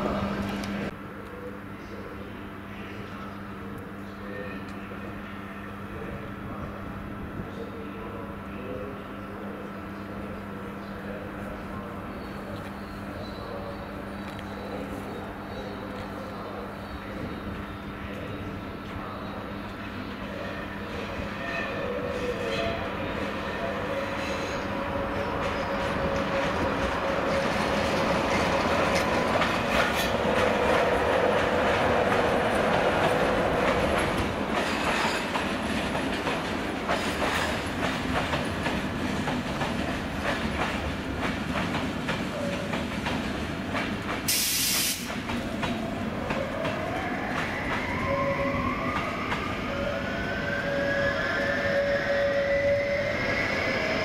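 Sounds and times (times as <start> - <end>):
train wheels clicking over joints: 25.4 - 47.9
brief hiss: 44.3 - 45.1.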